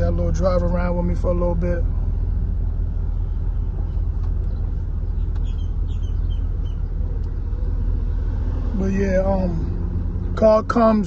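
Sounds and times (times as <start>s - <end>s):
car engine deep rumble: 0.0s - 11.0s.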